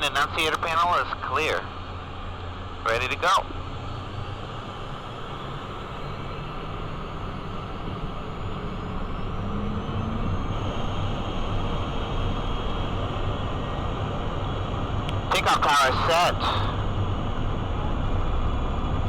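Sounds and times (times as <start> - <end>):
high turbine whine: 0.0 - 19.0.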